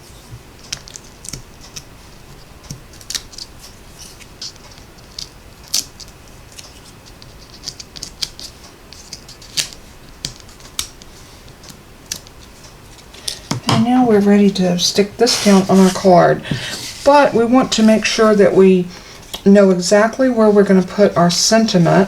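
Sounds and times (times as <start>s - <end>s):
backing paper peeling crackles: 0.6s - 13.4s.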